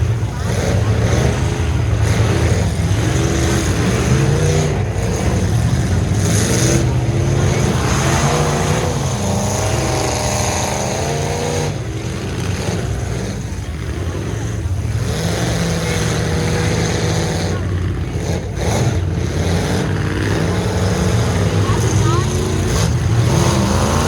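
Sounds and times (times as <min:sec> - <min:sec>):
truck engines revving: 0:00.0 - 0:24.0.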